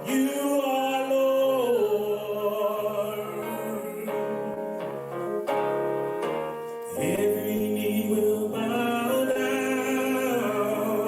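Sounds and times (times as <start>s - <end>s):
congregation singing: 0.0s - 11.0s
sustained instrumental chords: 3.0s - 11.0s.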